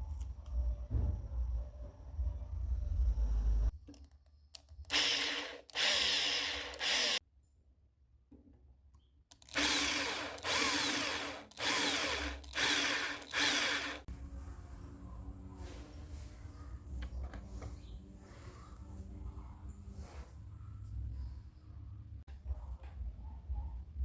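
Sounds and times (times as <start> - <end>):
power drill boring into wood: 4.9 - 7.2, 9.4 - 14.1.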